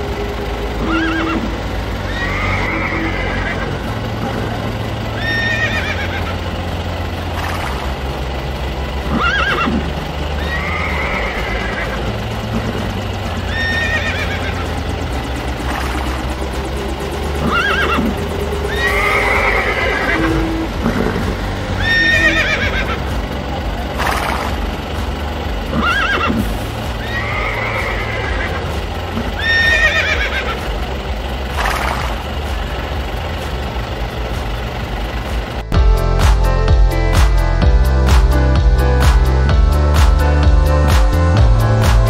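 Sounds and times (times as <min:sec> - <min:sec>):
background music: 0:00.0 - 0:42.0
horse whinnying: 0:00.8 - 0:01.5, 0:02.1 - 0:03.8, 0:05.2 - 0:06.3, 0:09.1 - 0:09.8, 0:10.4 - 0:12.0, 0:13.5 - 0:14.6, 0:17.4 - 0:18.1, 0:18.7 - 0:21.2, 0:21.8 - 0:23.0, 0:25.7 - 0:26.4, 0:27.0 - 0:28.6, 0:29.3 - 0:30.6.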